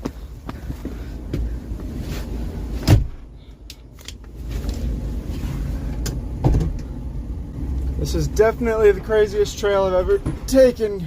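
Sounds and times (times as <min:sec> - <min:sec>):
bus rumbling over rough trail: 0:04.3 - 0:11.0.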